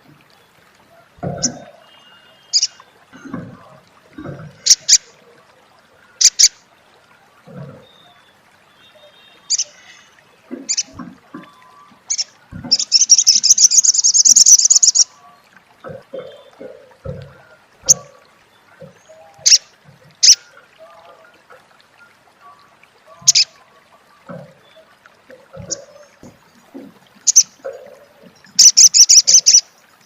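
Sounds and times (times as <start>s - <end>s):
bird chips and rattling chatter: 28.6s - 29.6s.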